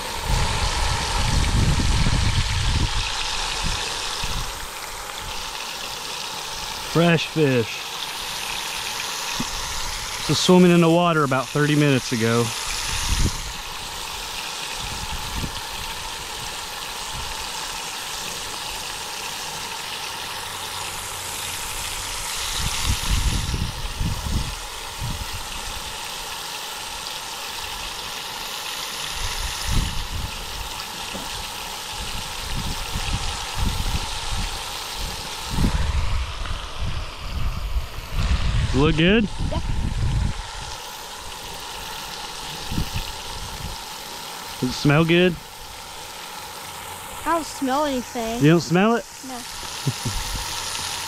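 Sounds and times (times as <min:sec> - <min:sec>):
wind on microphone: 0:00.0 - 0:05.4, 0:12.7 - 0:13.8, 0:14.8 - 0:16.5, 0:22.1 - 0:25.8, 0:29.1 - 0:30.7, 0:31.3 - 0:40.8, 0:42.5 - 0:43.8, 0:49.8 - 0:50.5
fish sizzling in oil: 0:00.0 - 0:51.0.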